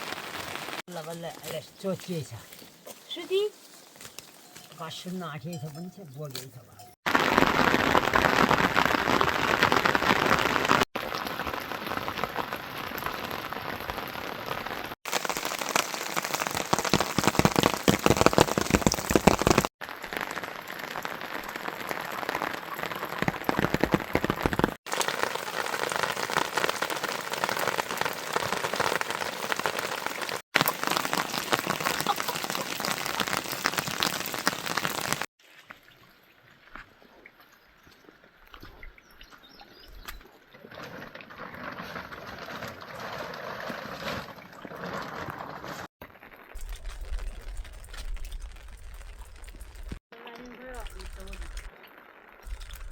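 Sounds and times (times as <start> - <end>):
rain falling: 0.0 - 2.6, 7.1 - 35.3, 41.5 - 52.9.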